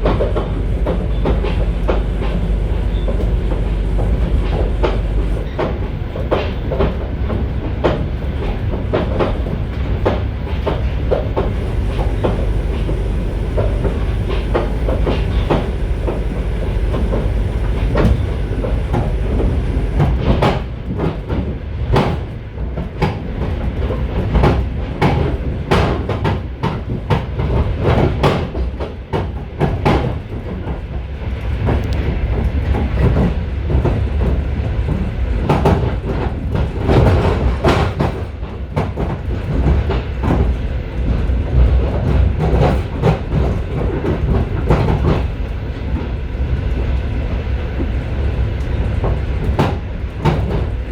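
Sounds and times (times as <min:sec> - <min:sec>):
wheels clicking over rail joints: 0:00.0 - 0:20.6
train wheels rumbling: 0:00.0 - 0:50.9.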